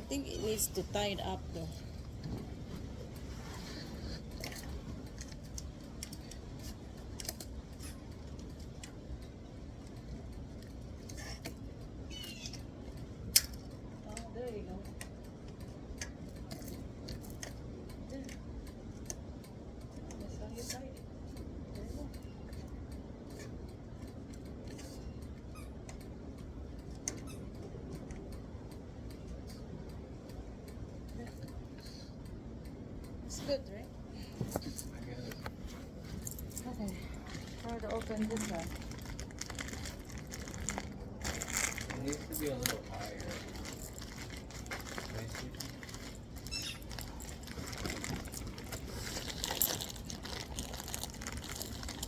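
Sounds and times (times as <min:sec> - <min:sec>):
steady low rumble: 0:00.0 - 0:52.0
light rustling: 0:34.2 - 0:52.0.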